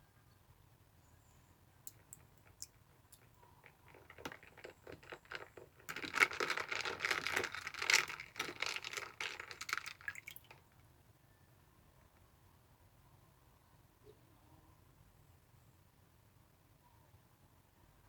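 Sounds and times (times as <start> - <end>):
dense crinkling: 1.9 - 10.6.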